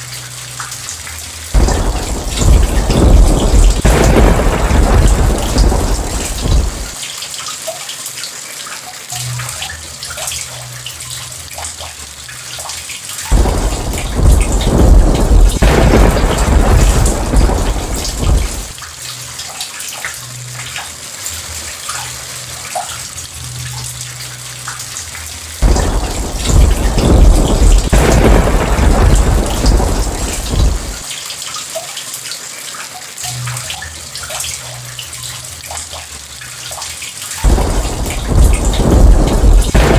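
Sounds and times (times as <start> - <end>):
heavy rain: 0.0 - 39.9
raindrop ticks: 0.0 - 39.9
rolling thunder: 1.6 - 7.0, 13.3 - 18.8, 25.6 - 31.1, 37.4 - 39.9.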